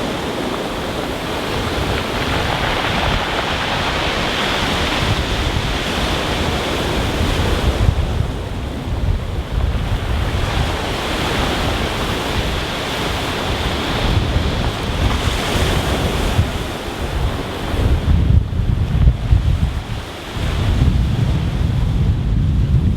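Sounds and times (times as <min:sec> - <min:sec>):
surf on a stony beach: 0:00.0 - 0:22.9
wind buffeting microphone: 0:00.0 - 0:22.9.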